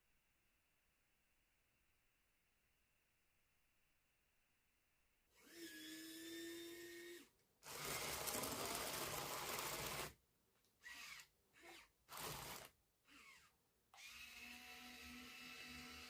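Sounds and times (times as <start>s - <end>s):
small electric motors whining: 10.8s - 16.0s.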